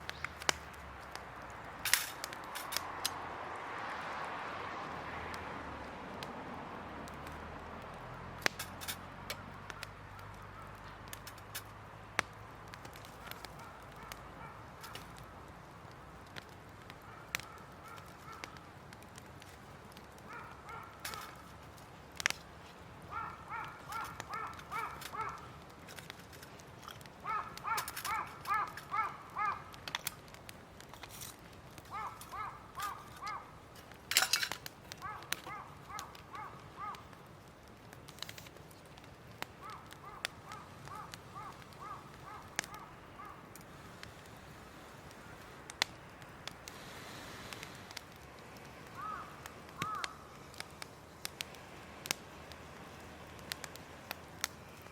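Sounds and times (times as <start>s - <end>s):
sharp cracks: 0.0s - 54.9s
bird giving harsh calls: 23.1s - 25.5s, 27.2s - 29.7s, 31.9s - 33.5s, 39.6s - 43.5s, 48.9s - 50.2s.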